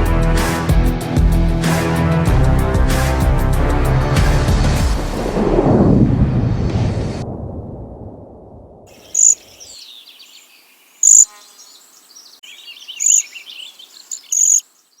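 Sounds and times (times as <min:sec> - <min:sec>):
loud high-pitched bird calls: 0:08.9 - 0:15.0
small birds chirping: 0:08.9 - 0:15.0.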